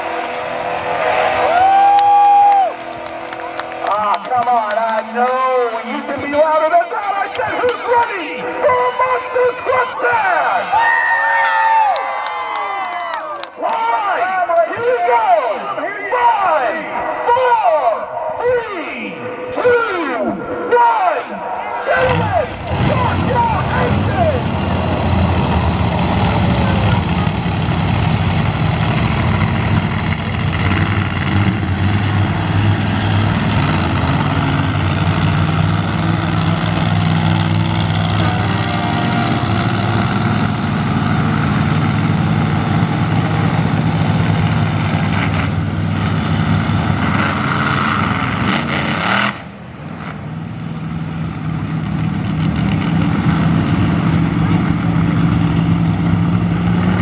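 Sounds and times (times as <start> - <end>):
monster truck engines revving: 0.0 - 57.0.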